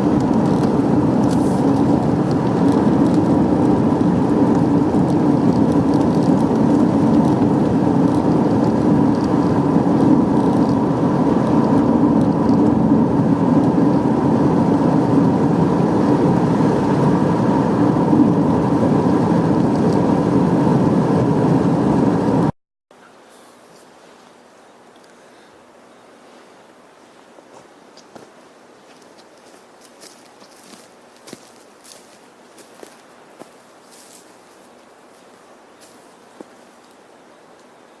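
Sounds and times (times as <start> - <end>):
car road and engine noise: 0.0 - 22.6.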